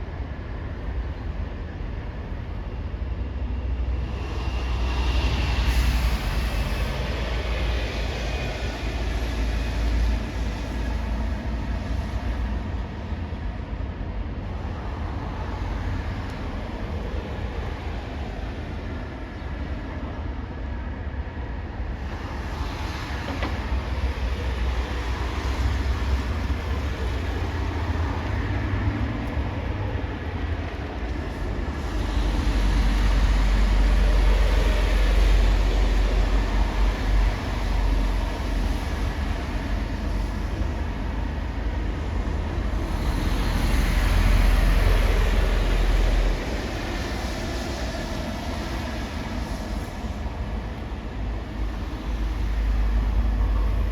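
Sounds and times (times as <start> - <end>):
heavy traffic rumble: 0.0 - 53.9
trucks passing close: 22.5 - 53.9.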